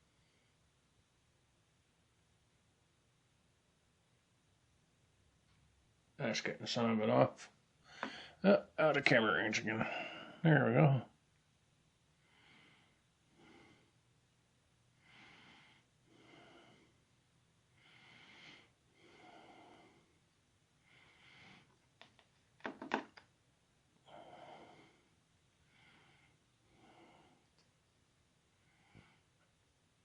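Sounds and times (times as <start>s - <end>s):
person breathing softly: 7.8s - 8.5s, 9.8s - 10.4s, 12.2s - 14.0s, 14.9s - 21.9s, 24.0s - 27.7s, 28.5s - 29.5s.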